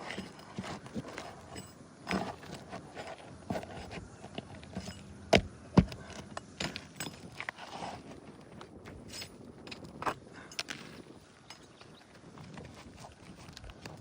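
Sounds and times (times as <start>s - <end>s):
tapping and knocking on roof shingles: 2.1s - 7.2s.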